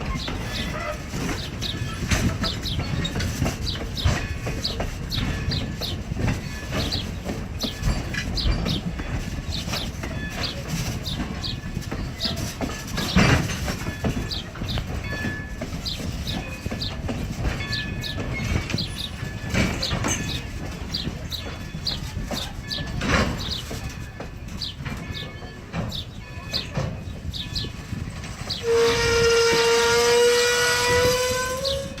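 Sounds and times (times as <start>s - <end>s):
steam train rumbling: 0.0s - 32.0s
steam whistle blowing: 28.6s - 32.0s.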